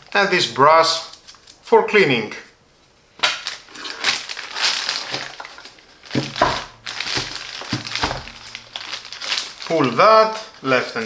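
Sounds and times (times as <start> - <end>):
plastic packaging crinkling: 3.2 - 11.0.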